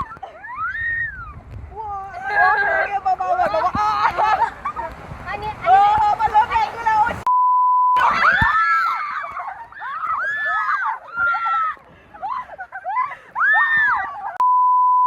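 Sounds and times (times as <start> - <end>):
voices screaming and squealing: 0.0 - 7.3, 8.0 - 14.4
steady bleep tone: 14.4 - 15.0.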